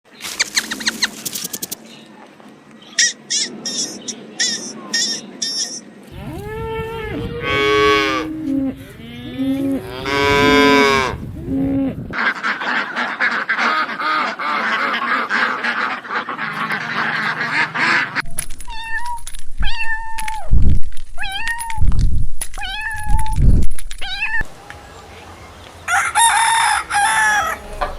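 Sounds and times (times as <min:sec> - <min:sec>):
farm animals calling: 0:02.9 - 0:18.3, 0:24.4 - 0:27.9.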